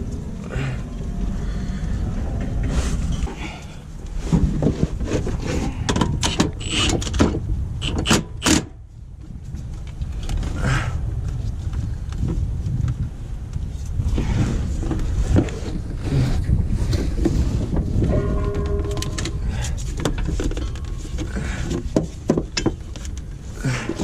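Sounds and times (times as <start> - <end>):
steady low rumble: 0.0 - 24.0
metal tools and bolts clanking: 18.1 - 21.8.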